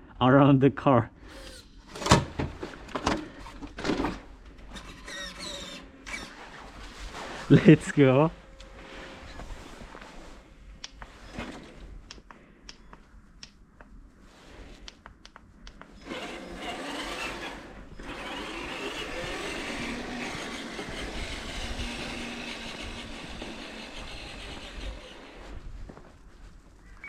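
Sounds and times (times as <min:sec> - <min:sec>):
rc truck motor whining: 0:01.3 - 0:02.2, 0:04.6 - 0:06.5, 0:15.9 - 0:25.6.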